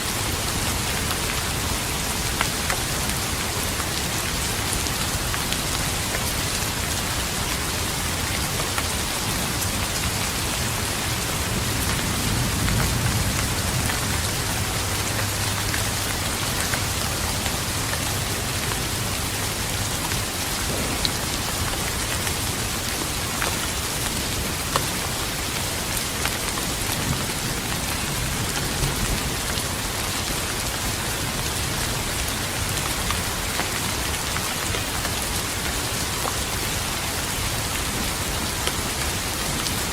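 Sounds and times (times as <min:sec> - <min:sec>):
steady rain: 0:00.0 - 0:39.9
distant thunder rumble: 0:11.1 - 0:15.8, 0:20.6 - 0:22.0.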